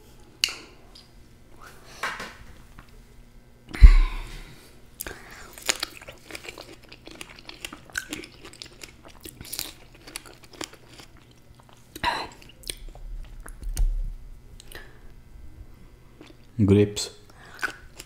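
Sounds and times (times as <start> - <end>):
low dull bump: 3.8 - 4.5
wet chewing mouth noises: 5.0 - 13.8, 17.3 - 18.0.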